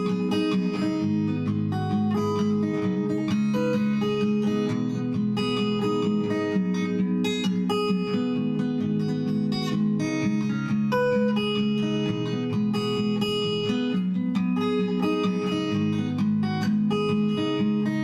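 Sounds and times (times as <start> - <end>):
acoustic guitar strummed and picked: 0.0 - 18.0.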